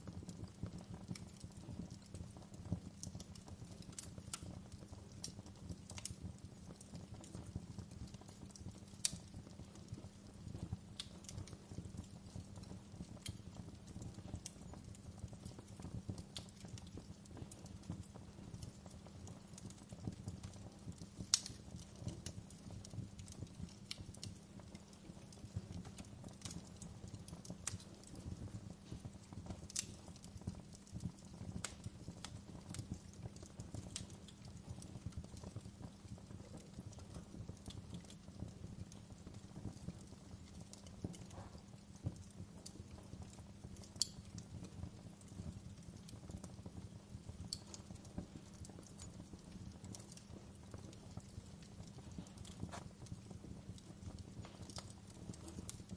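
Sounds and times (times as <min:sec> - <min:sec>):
crackles and pops of burning logs: 0:00.0 - 0:55.9
low rumble of flames: 0:00.0 - 0:55.9.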